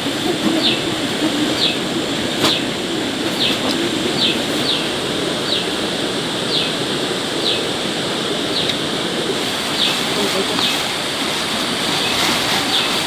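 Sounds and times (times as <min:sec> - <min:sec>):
steady rain: 0:00.0 - 0:13.0
bird chirping: 0:00.2 - 0:05.8, 0:06.5 - 0:06.8, 0:07.4 - 0:07.7, 0:08.5 - 0:08.8, 0:09.6 - 0:10.8.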